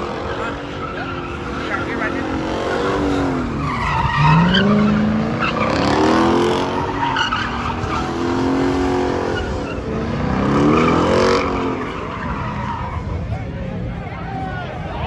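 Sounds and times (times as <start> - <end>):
performance car engine revving: 0.0 - 12.8
tyre squeal: 0.6 - 9.9.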